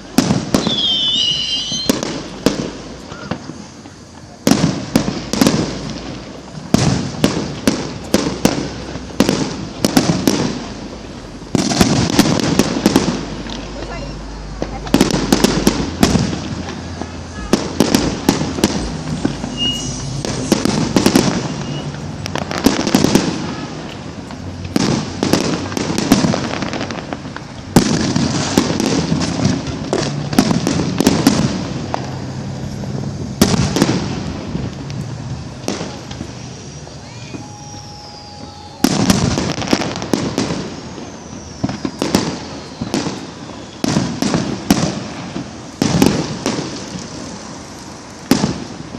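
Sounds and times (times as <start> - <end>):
fireworks bangs: 0.0 - 48.9
fireworks crackling and popping: 0.0 - 48.9
falling whistle: 0.6 - 2.0, 19.2 - 22.0, 36.5 - 39.1, 40.6 - 43.9.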